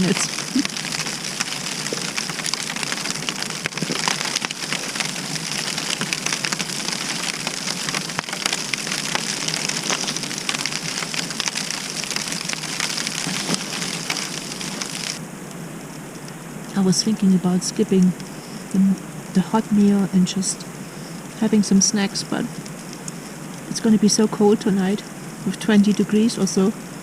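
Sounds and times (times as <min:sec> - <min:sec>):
snow hitting tent fabric: 0:00.0 - 0:15.2.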